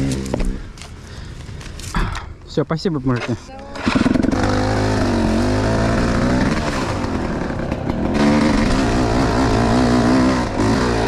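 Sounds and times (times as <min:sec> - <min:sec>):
motorcycle engine revving: 0:00.0 - 0:00.6, 0:03.7 - 0:11.0.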